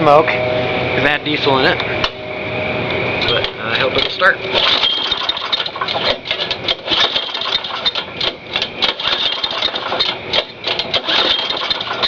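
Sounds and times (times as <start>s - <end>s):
lawn mower engine running roughly: 3.7s - 12.0s.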